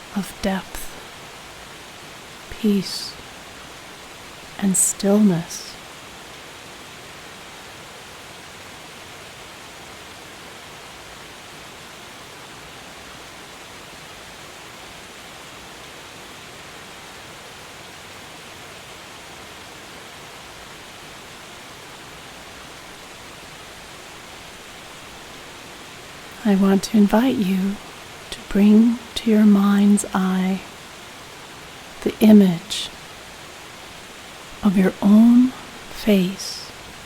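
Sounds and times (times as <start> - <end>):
waterfall rushing: 27.3 - 37.0.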